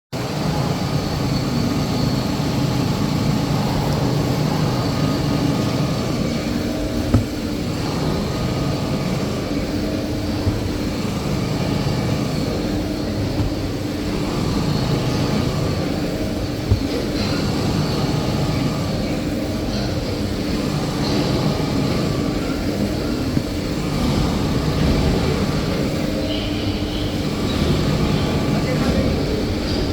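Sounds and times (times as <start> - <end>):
band saw machine humming: 3.2 - 19.1.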